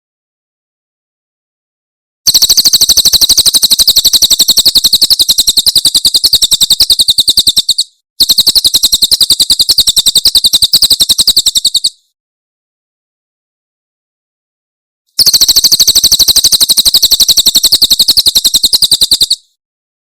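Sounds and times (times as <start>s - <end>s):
bird singing rapid sharp high notes: 2.3s - 12.0s, 15.2s - 19.5s.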